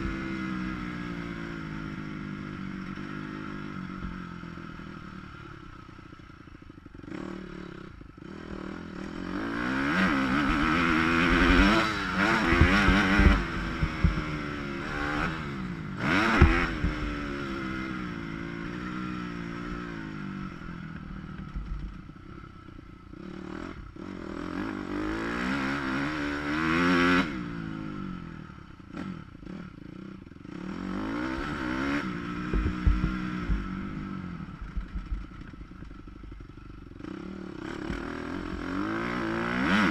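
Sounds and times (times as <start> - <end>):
muffled motorbike engine revving: 0.0 - 39.9
sharp knocks and clatter: 12.4 - 14.4, 16.3 - 17.1, 32.5 - 33.7.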